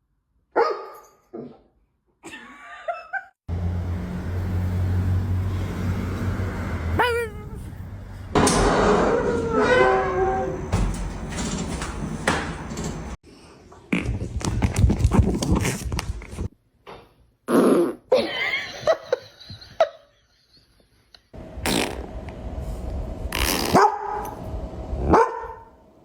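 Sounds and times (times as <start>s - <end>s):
dog farting: 17.5s - 18.1s, 21.6s - 22.1s, 23.3s - 23.8s.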